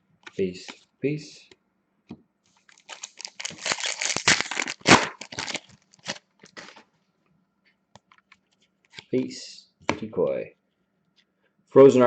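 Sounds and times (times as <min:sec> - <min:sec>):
card pack wrapper tearing and crinkling: 0:02.7 - 0:06.8.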